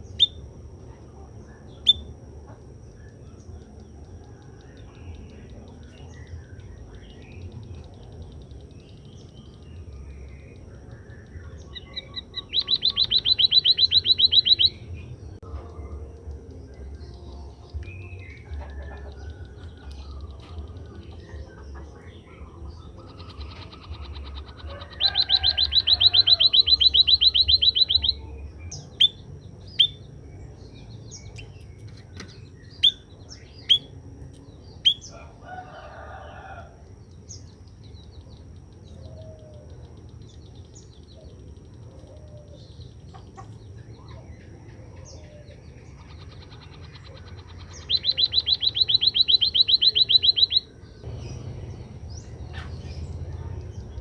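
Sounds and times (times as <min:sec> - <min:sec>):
sharp high bird chirps: 0:06.3 - 0:14.9, 0:22.8 - 0:30.0, 0:31.1 - 0:34.0, 0:46.0 - 0:53.5.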